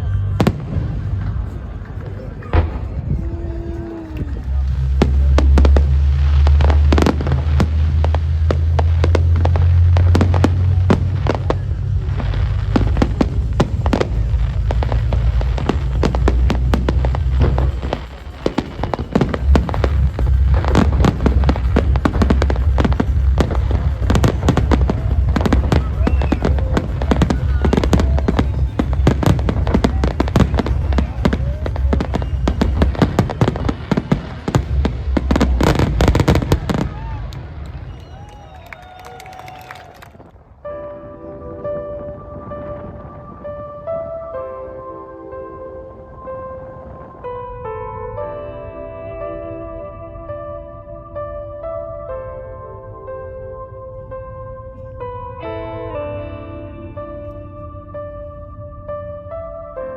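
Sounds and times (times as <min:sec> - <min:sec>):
low rumble: 0:00.0 - 0:40.9
music playing: 0:00.0 - 0:59.9
fireworks bangs and crackles: 0:00.4 - 0:40.5.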